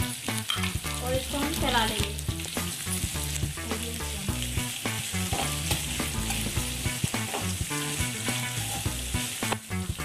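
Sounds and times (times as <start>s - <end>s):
onions sizzling in hot oil: 0.0s - 10.0s
metal spatula scraping pan: 5.2s - 9.0s.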